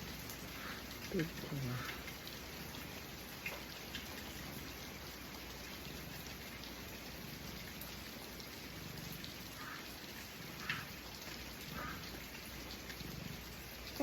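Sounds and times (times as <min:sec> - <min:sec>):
heavy rain pouring: 0:00.0 - 0:14.0
cat purring: 0:07.1 - 0:09.4, 0:12.9 - 0:14.0.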